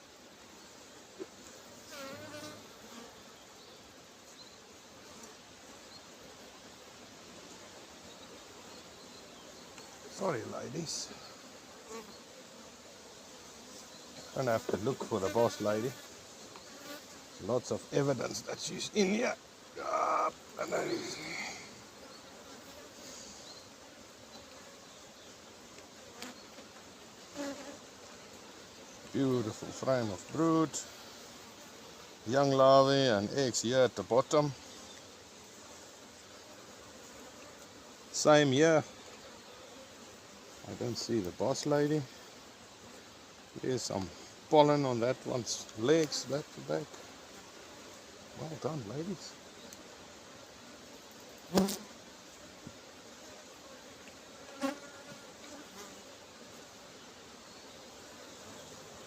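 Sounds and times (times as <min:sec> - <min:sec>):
bees buzzing: 0:00.0 - 0:59.0
bee flying past microphone: 0:50.7 - 0:52.1.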